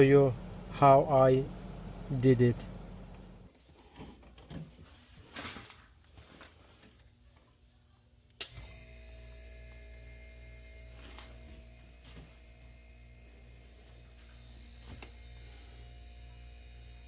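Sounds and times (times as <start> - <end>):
compressor motor humming: 0.0 - 3.5, 8.4 - 17.0
sharp electrical click: 8.4 - 8.8.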